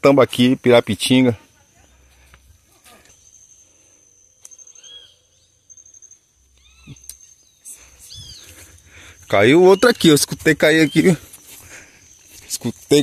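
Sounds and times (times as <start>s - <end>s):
high insect whine: 0.0s - 13.0s
bird whistled calls: 4.4s - 8.5s.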